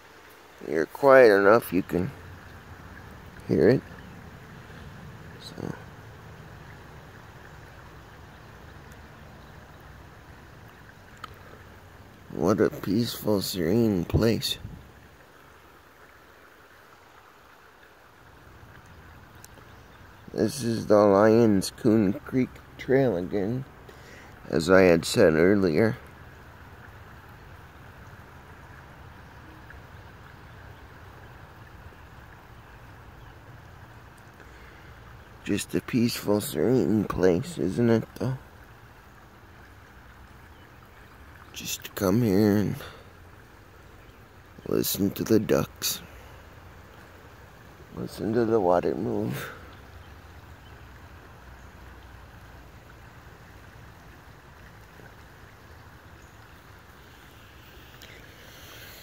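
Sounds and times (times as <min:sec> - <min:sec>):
creek water flowing: 0:00.0 - 0:59.0.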